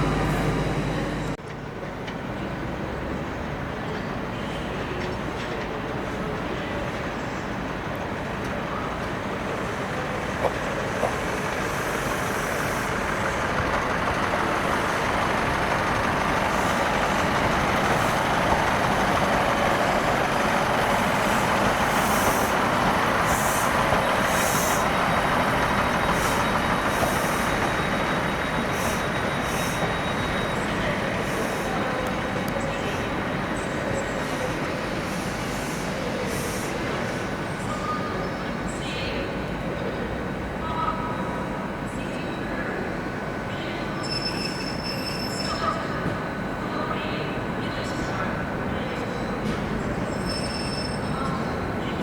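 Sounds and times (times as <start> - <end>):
train engine running: 0.0 - 2.8, 5.0 - 40.6, 45.2 - 52.0
brake air hissing: 14.4 - 24.8.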